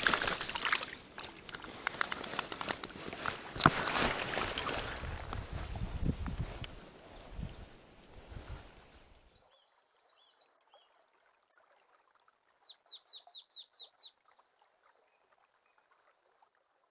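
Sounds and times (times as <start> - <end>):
songbirds singing: 6.8 - 16.9.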